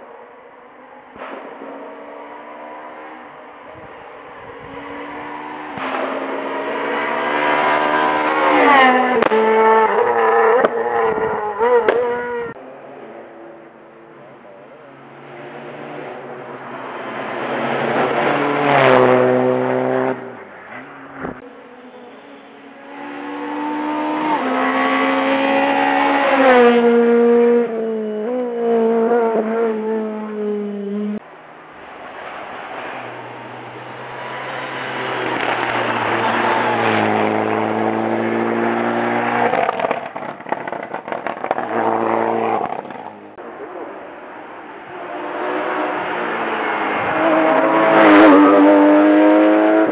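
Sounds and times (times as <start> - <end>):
rally car engine at high revs: 1.2 - 12.6, 13.4 - 22.0, 22.6 - 31.2, 34.0 - 49.9
exhaust crackles and pops: 35.3 - 35.9, 39.4 - 43.3.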